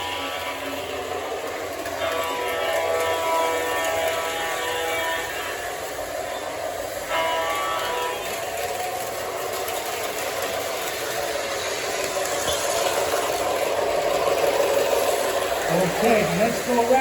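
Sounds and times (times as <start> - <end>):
model locomotive running on track: 0.0 - 17.0
model locomotive horn blasts: 2.0 - 5.8, 7.1 - 8.4.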